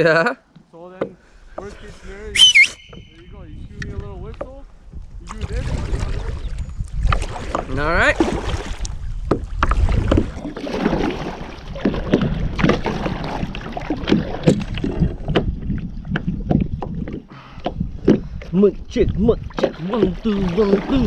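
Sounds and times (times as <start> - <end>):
wind rumble on microphone: 1.5 - 21.0
paddle splashing in water: 5.3 - 21.0.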